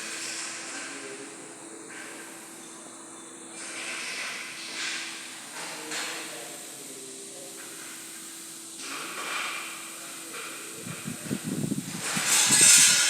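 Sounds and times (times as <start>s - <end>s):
compressed air hissing: 6.2s - 13.0s.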